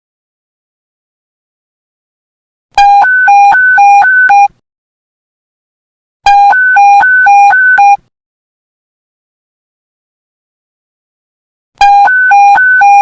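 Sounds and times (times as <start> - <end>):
electronic two-tone beep: 2.8 - 4.5, 6.3 - 8.0, 11.8 - 13.0.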